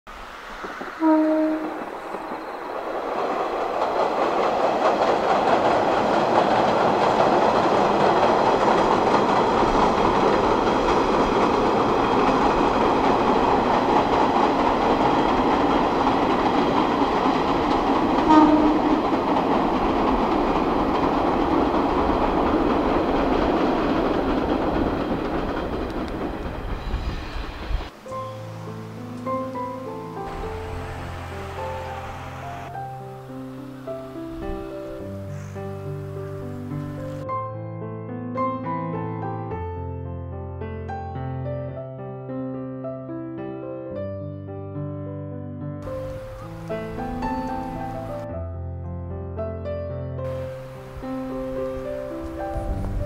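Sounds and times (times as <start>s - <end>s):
railcar running on bridge: 0.1s - 37.3s, 45.8s - 48.6s, 50.2s - 53.0s
train horn toot: 1.0s - 2.4s, 18.2s - 19.1s.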